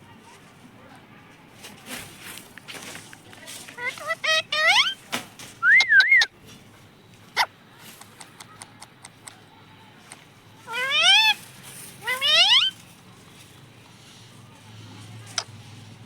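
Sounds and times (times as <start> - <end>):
parrot squawking: 3.8 - 5.0, 5.6 - 6.3, 10.7 - 11.4, 12.0 - 12.8
parrot whistling: 5.6 - 6.3, 12.0 - 12.8.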